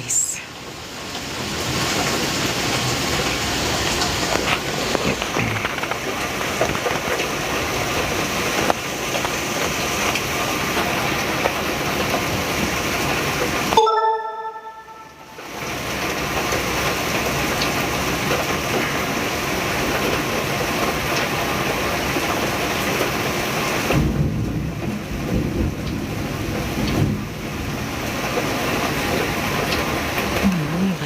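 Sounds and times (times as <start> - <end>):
heavy rain pouring: 0.0 - 31.0
low thunder rumbling: 23.9 - 30.4.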